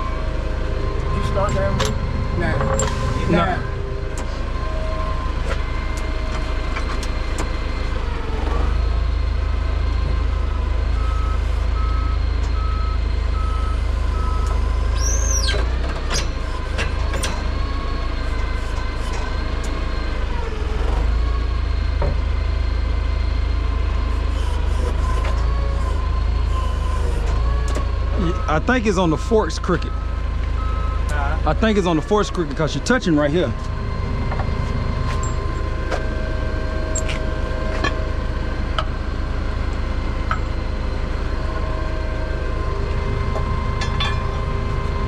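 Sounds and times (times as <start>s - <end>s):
high-pitched squeal: 0.0s - 10.6s, 31.4s - 45.0s
diesel engine rumbling: 0.0s - 45.0s
reversing alarm beeping: 0.0s - 45.0s.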